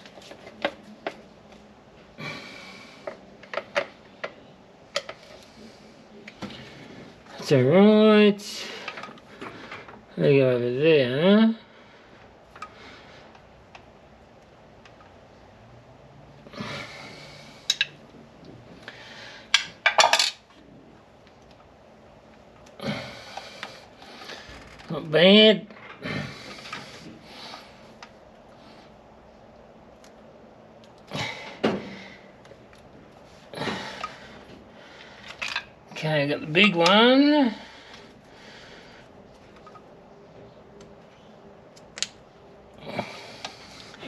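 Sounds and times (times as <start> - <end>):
rustling and scraping: 0.0 - 1.7
tools clicking and tapping: 17.7 - 18.0.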